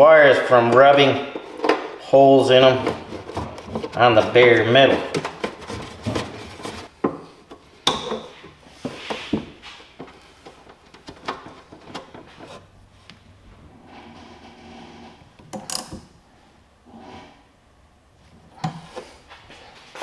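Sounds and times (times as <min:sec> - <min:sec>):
clicks and knocks handling cables: 0:02.8 - 0:13.2.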